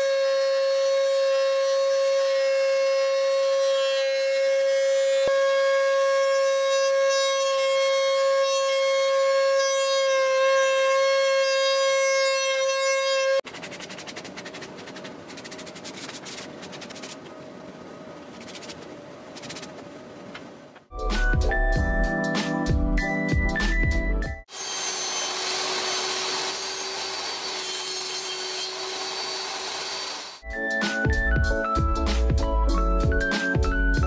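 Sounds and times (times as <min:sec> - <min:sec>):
hand sanding on wood: 0:13.5 - 0:17.2, 0:18.4 - 0:19.8
wood router whining: 0:24.5 - 0:30.4.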